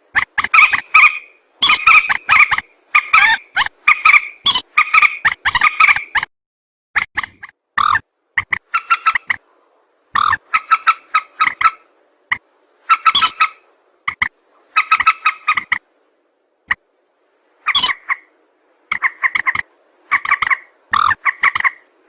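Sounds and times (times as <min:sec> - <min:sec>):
harsh rapid bird calls: 0:00.2 - 0:06.3, 0:07.2 - 0:09.4, 0:12.9 - 0:15.8, 0:17.6 - 0:18.3, 0:18.9 - 0:21.8.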